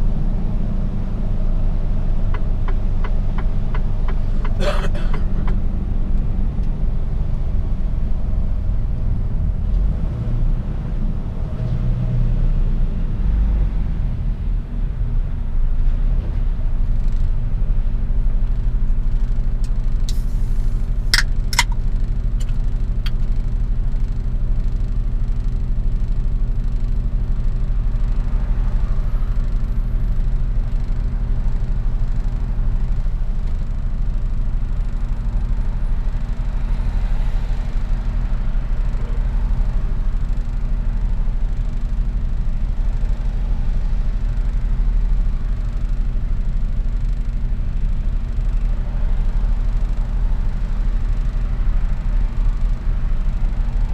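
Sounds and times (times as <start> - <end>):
truck engine and road drone: 0.0 - 53.9
sharp clicks or knocks: 21.2 - 21.8.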